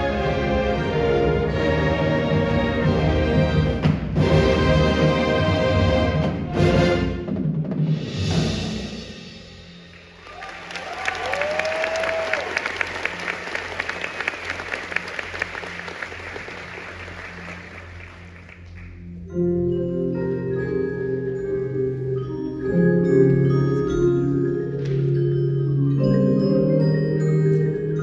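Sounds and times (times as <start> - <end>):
marimba and xylophone music: 0.0 - 7.0, 19.0 - 28.0
applause: 10.2 - 19.0.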